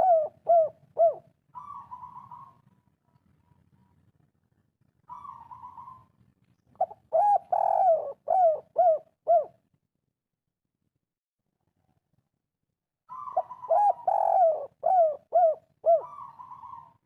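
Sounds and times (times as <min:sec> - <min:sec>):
dove cooing: 0:00.0 - 0:02.7, 0:05.1 - 0:06.2, 0:06.8 - 0:09.6, 0:13.1 - 0:17.0.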